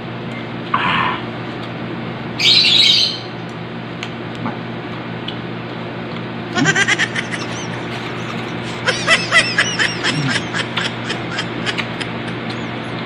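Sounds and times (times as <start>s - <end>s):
steady low hum: 0.0s - 13.0s
loud bird squawk: 2.4s - 3.4s
burst of laughter: 6.5s - 13.0s.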